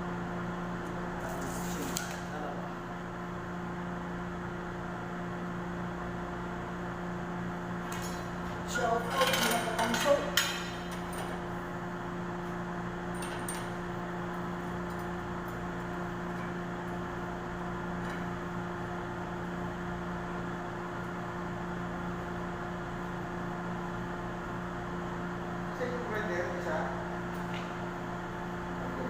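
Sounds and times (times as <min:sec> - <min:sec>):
machine hum with low tones: 0:00.0 - 0:29.0.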